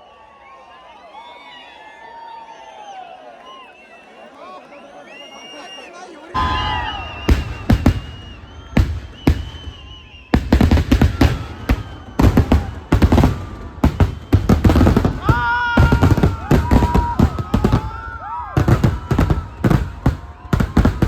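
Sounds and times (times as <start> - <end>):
firework whistling: 6.4 - 21.0
fireworks bangs and crackles: 6.4 - 21.0.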